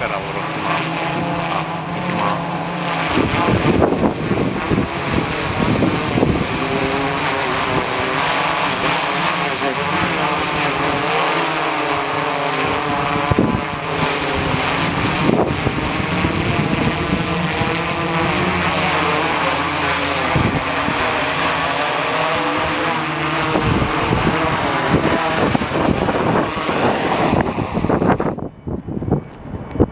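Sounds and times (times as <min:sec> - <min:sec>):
drone propellers buzzing: 0:00.0 - 0:29.9.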